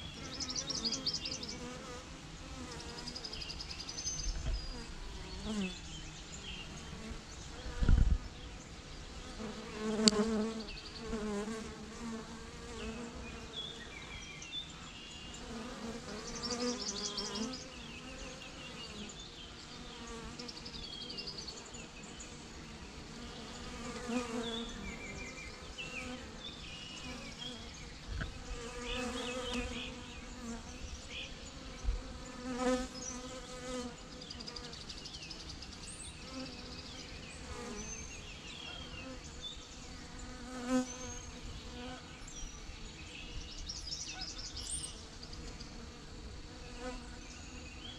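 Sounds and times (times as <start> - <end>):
sharp low thump: 7.8 - 8.2
bee swarm buzzing: 9.2 - 14.0, 21.8 - 34.7, 40.0 - 42.0.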